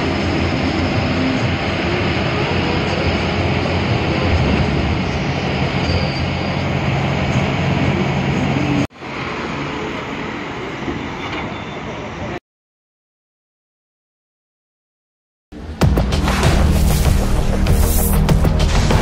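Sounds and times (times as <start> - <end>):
bus engine and road rumble: 0.0 - 12.4.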